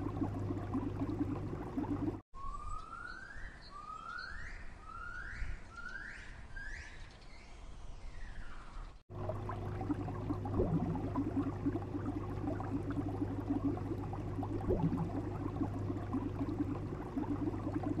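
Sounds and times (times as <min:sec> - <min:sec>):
steady low hum: 0:00.0 - 0:02.2, 0:09.1 - 0:18.0
water bubbling and gurgling: 0:00.0 - 0:02.2, 0:09.1 - 0:18.0.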